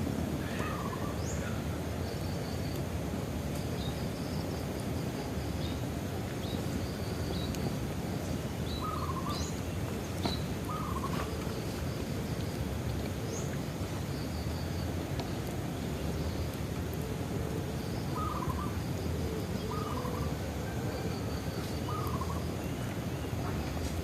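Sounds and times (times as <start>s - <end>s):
bonfire burning and crackling: 0.0s - 24.0s
bird warbling calls: 0.4s - 1.6s, 8.6s - 11.6s, 18.1s - 18.8s, 19.6s - 20.3s, 21.8s - 23.6s
birds chirping: 5.6s - 16.6s, 18.0s - 20.4s, 21.4s - 24.0s.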